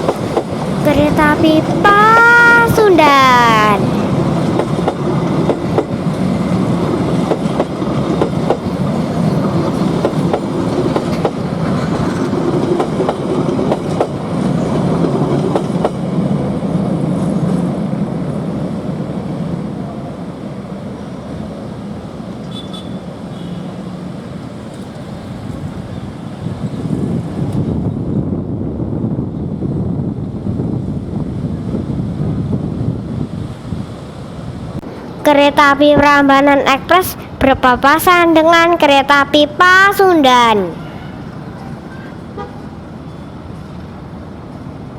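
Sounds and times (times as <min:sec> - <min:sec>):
train wheels clattering: 0:04.1 - 0:16.2.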